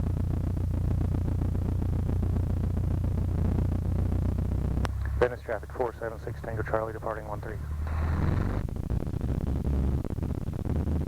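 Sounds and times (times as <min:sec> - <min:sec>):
light aircraft engine droning: 0:00.0 - 0:11.0.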